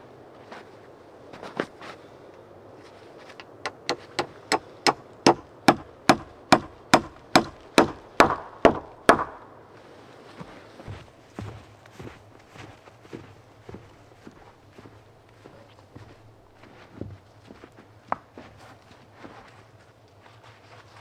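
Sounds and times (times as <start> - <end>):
hammer striking wood: 3.6 - 9.5.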